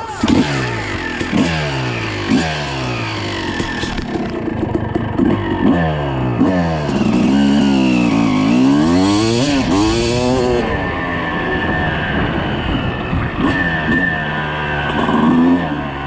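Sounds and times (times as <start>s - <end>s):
two-stroke engine revving: 0.0s - 12.2s.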